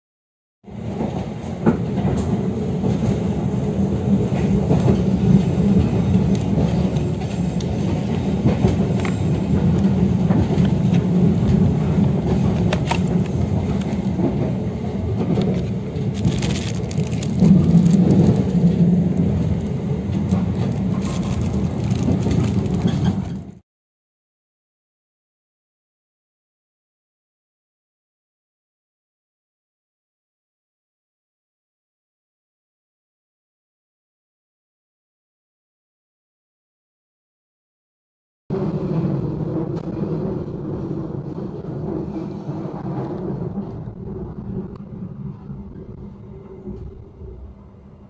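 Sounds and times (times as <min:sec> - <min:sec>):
train rumble from inside: 0:00.7 - 0:23.6, 0:38.5 - 0:48.0.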